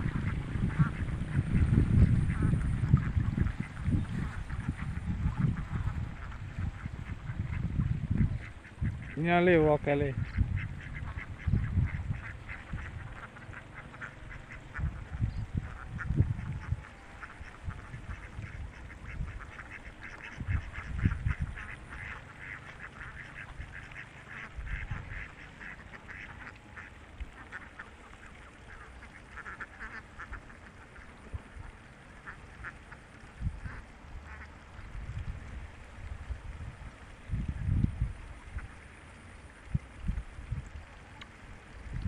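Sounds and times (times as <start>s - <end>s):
low rumbles: 0.0s - 9.0s
ducks quacking: 0.0s - 34.9s.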